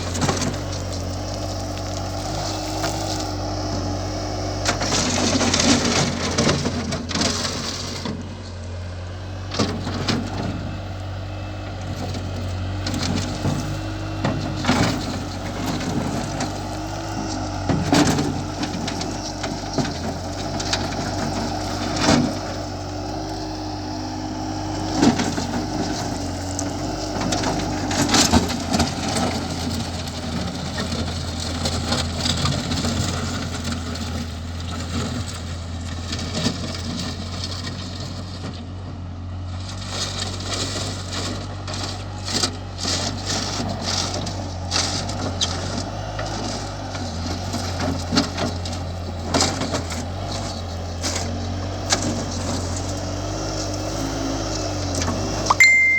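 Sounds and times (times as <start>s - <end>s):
rocks crunching and knocking: 0.0s - 8.8s, 11.8s - 38.7s
loader engine running: 0.0s - 55.9s.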